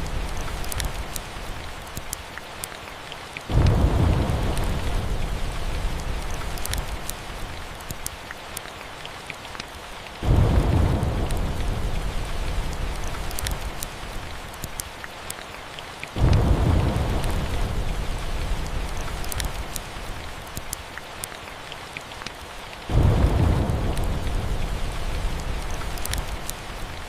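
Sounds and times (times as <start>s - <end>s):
wood fire crackling: 0.0s - 15.4s, 16.1s - 27.0s
steady rain: 0.0s - 27.0s
rolls of thunder: 3.5s - 6.3s, 10.2s - 13.0s, 16.2s - 18.7s, 22.9s - 25.7s.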